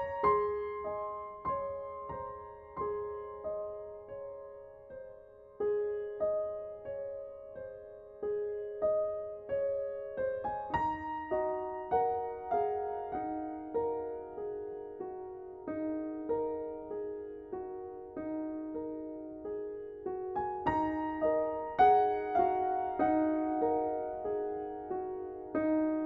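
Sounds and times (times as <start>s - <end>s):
slow solo piano: 0.0s - 26.0s.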